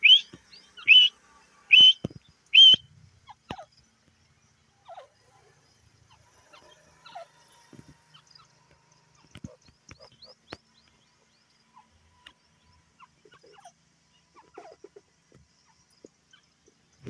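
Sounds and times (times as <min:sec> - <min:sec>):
bird chirps and calls: 0:00.0 - 0:03.8, 0:06.0 - 0:17.0.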